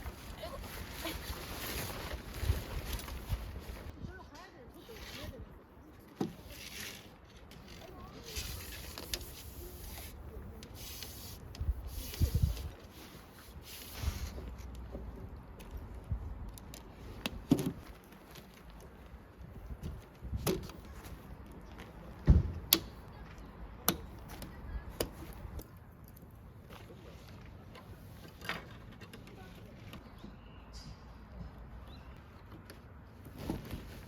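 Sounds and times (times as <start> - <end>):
camping gear clicking and knocking: 16.5 - 18.9, 19.7 - 23.0.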